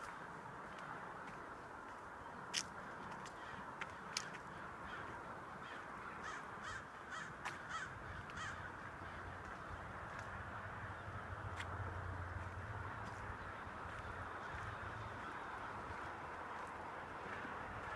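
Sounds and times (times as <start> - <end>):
bird calling: 3.3 - 9.4.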